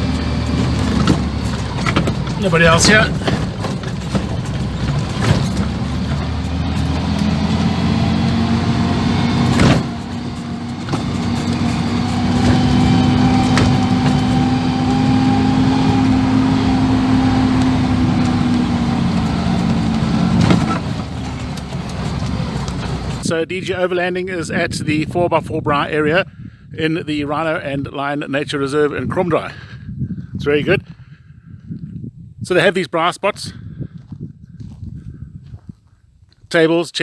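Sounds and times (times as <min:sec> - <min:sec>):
vehicle engine running: 0:00.0 - 0:23.4.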